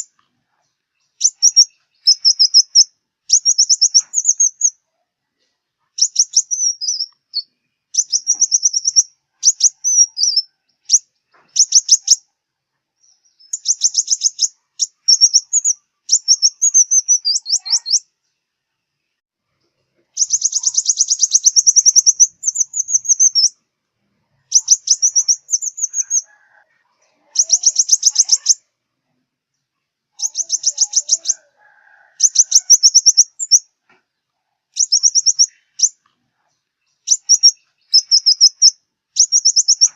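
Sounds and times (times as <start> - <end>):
sunbird trilling song: 0.0 - 4.8, 6.0 - 12.3, 13.0 - 18.4, 20.1 - 23.6, 24.4 - 26.3, 27.3 - 28.7, 30.1 - 31.5, 32.2 - 33.7, 34.8 - 36.1, 36.8 - 39.9.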